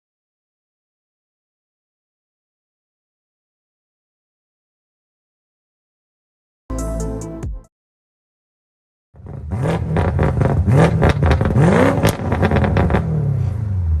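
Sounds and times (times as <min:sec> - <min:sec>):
exhaust crackles and pops: 0:09.2 - 0:13.2
car engine revving: 0:09.2 - 0:14.0.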